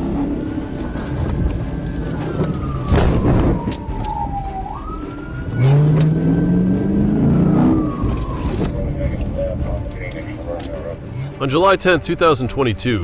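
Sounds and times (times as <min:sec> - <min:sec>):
police siren wailing: 0:00.0 - 0:11.2
engine revving low drone: 0:00.0 - 0:11.4.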